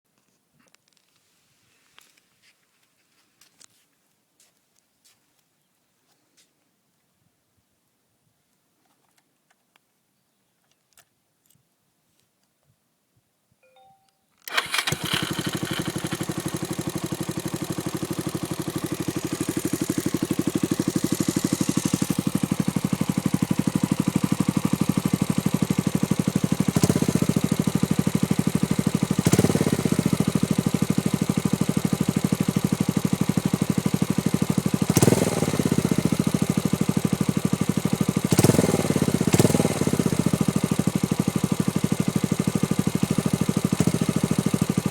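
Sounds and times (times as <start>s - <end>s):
motorcycle engine idling: 14.5s - 44.9s.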